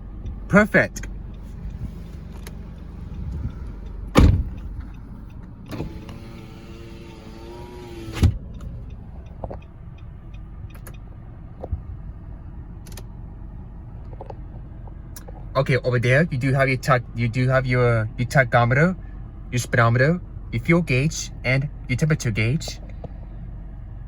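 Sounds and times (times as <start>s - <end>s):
car engine idling: 0.0s - 24.0s
heavy door slam: 4.1s - 4.6s
window clunk: 4.1s - 4.6s
electric window motor whining: 5.7s - 8.4s.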